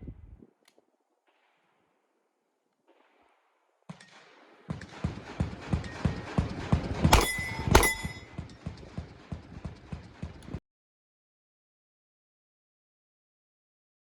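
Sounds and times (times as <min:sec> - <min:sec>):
sharp metallic impacts: 0:07.1 - 0:08.4.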